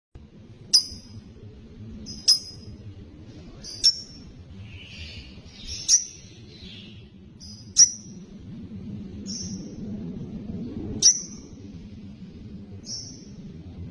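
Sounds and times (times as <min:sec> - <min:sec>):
low steady hum: 0:00.2 - 0:13.9
lovebird sharp high chirps: 0:00.7 - 0:01.2, 0:02.1 - 0:02.7, 0:03.7 - 0:04.3, 0:05.6 - 0:06.3, 0:07.4 - 0:08.2, 0:11.0 - 0:11.4.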